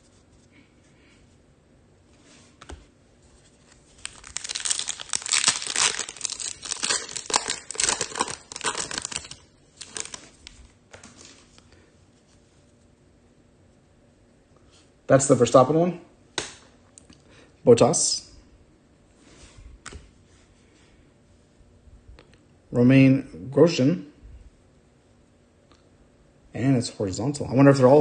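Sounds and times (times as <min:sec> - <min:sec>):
foil wrapper tearing and crinkling: 0:04.0 - 0:10.6.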